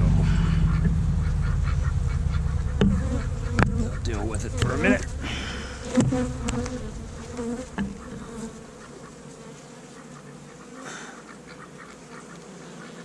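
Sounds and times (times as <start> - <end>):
bees buzzing: 0.0 - 13.0
sharp knocks: 0.7 - 9.1.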